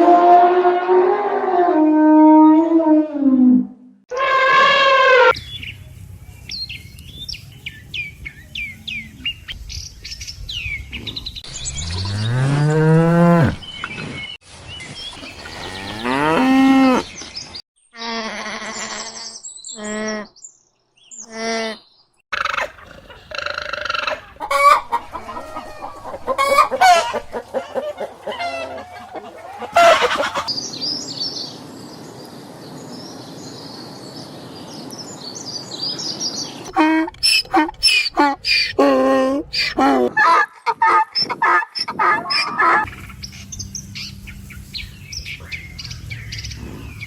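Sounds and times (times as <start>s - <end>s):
hens clucking: 22.4s - 30.5s, 39.6s - 43.4s.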